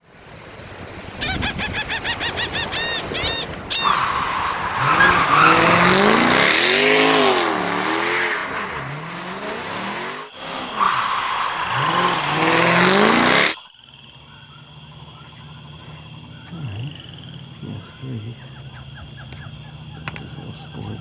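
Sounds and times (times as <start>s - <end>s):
engine revving: 3.6s - 21.0s
high chirps: 9.4s - 21.0s.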